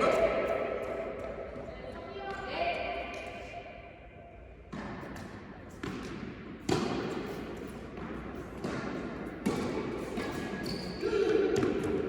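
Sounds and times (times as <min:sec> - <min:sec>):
tennis ball struck by rackets: 0:04.7 - 0:07.4, 0:08.0 - 0:10.3
tennis ball bouncing: 0:04.7 - 0:10.3.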